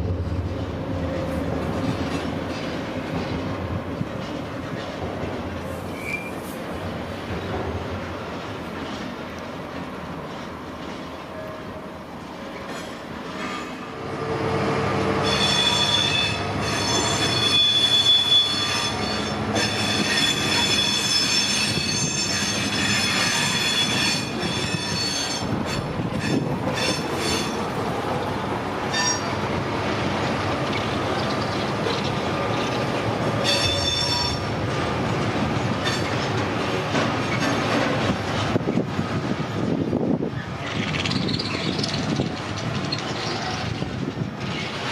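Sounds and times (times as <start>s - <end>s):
train running on rails: 0.0s - 44.9s
train wheels squealing: 5.8s - 6.5s, 15.2s - 27.7s, 28.9s - 29.4s, 33.4s - 34.5s, 40.4s - 43.8s.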